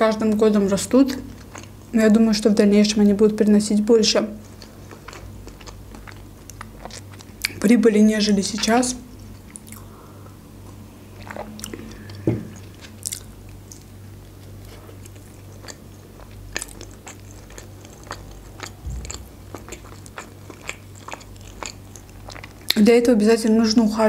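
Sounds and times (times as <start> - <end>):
faint low hum: 0.0 - 24.0
mouth chewing soft food: 1.1 - 1.8, 4.4 - 7.6, 9.1 - 22.8
loud knock: 12.2 - 12.5.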